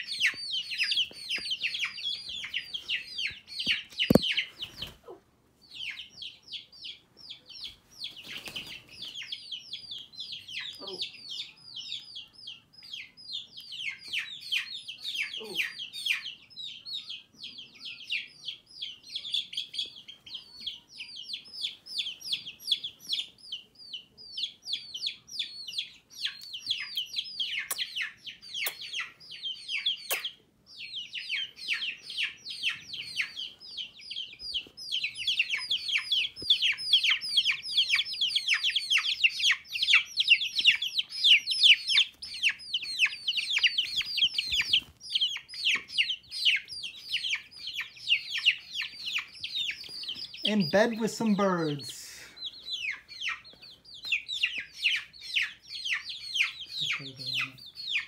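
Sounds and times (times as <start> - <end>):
baby chicks peeping: 0.0 - 58.0.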